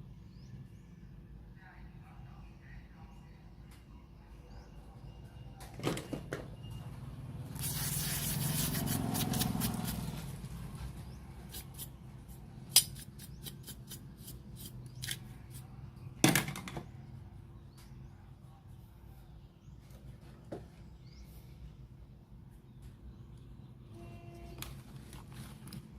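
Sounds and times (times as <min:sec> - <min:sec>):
aerosol spray hissing: 0:07.6 - 0:10.0.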